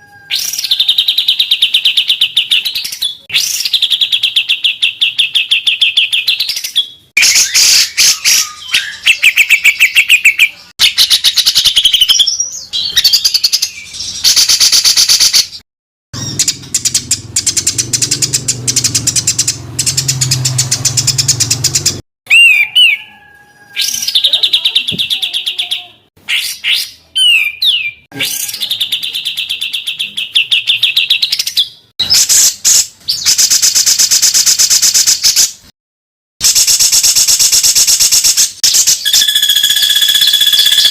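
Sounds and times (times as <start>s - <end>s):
songbirds harsh rapid bursts: 0.5s - 10.1s, 16.2s - 22.0s, 32.2s - 35.5s, 36.4s - 40.9s
low-pitched bird rattling: 16.2s - 22.0s, 36.6s - 40.9s.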